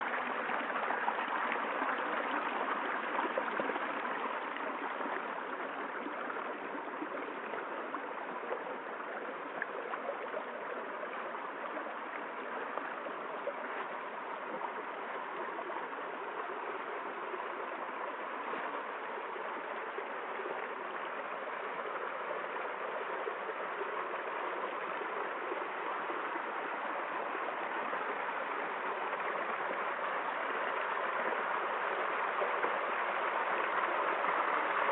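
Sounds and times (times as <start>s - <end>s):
stream babbling over stones: 0.0s - 34.9s.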